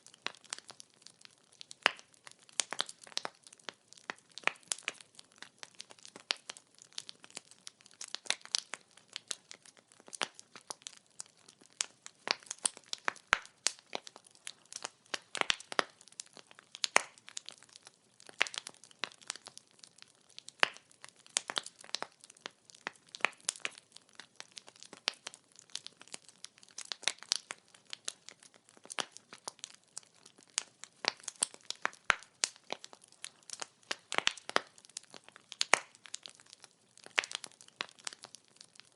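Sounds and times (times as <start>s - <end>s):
firewood crackling and popping: 0.0s - 38.9s.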